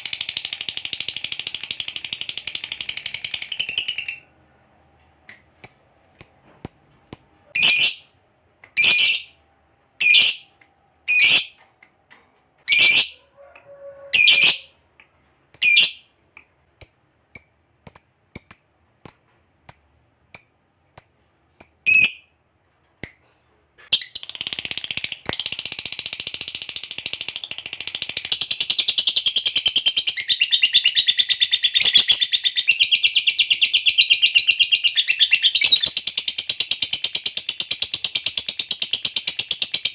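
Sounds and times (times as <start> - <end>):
lovebird chirping and chattering: 0.0 - 4.3, 5.6 - 8.1, 8.8 - 9.4, 10.0 - 10.5, 11.1 - 11.6, 12.7 - 13.1, 14.2 - 14.6, 15.5 - 22.3, 23.9 - 39.9.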